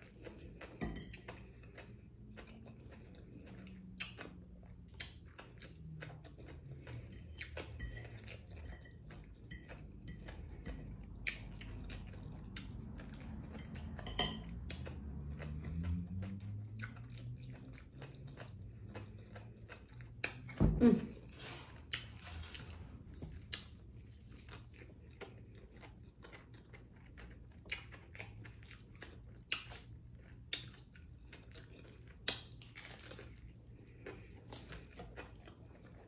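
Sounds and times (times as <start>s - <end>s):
chewing with wet mouth clicks: 0.0s - 20.6s, 21.8s - 36.0s
fork tapping and scraping plate: 13.5s - 14.9s.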